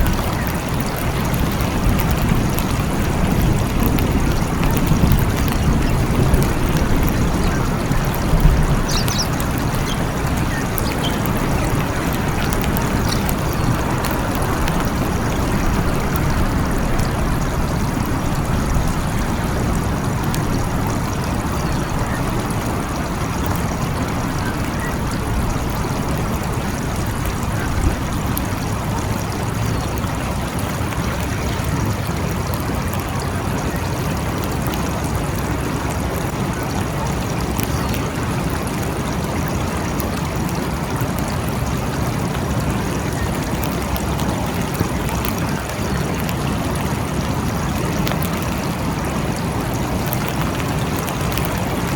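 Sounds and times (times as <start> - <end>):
rain hissing: 0.0 - 36.3.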